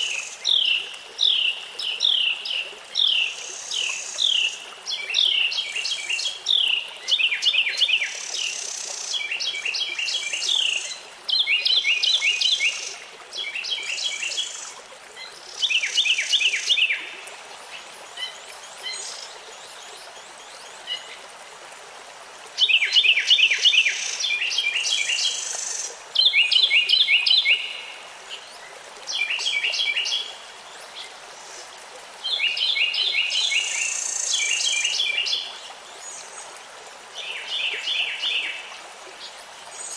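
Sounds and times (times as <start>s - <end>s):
songbird singing: 29.1s - 36.3s.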